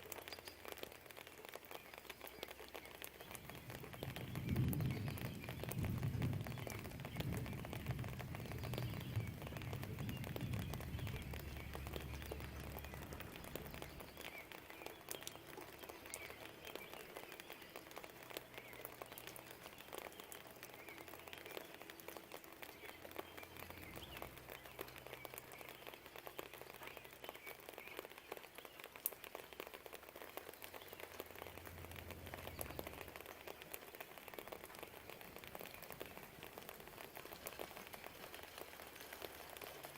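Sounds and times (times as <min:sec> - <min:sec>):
light rain pattering: 0:00.0 - 0:39.9
low distant rumble: 0:03.3 - 0:14.4.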